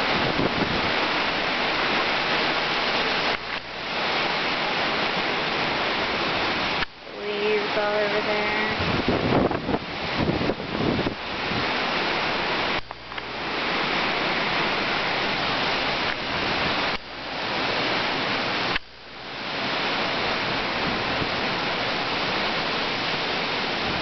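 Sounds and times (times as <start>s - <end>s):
wind buffeting microphone: 0.0s - 3.3s, 3.9s - 18.8s
storm wind through trees: 0.0s - 24.0s.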